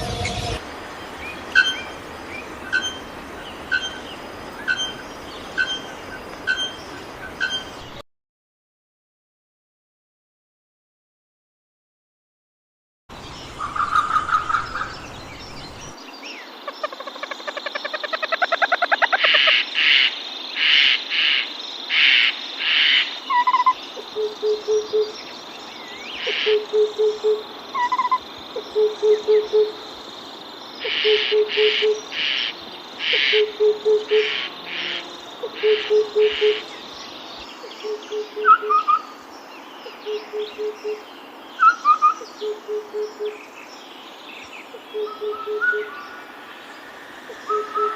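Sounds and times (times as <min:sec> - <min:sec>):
high bird chirps: 0:03.7 - 0:08.0
low hooting bird call: 0:44.9 - 0:46.2, 0:47.2 - 0:47.9.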